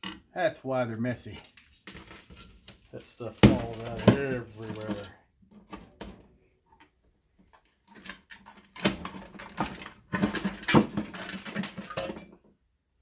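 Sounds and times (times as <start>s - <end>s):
metal clinking and scraping: 1.2s - 6.1s, 7.6s - 12.4s.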